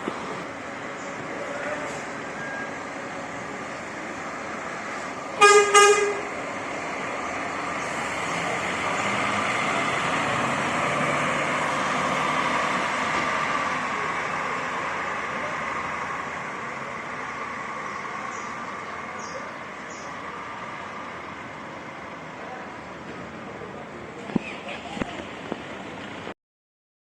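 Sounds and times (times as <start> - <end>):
coach engine running: 0.0 - 24.3
coach horn blasts: 5.4 - 6.4.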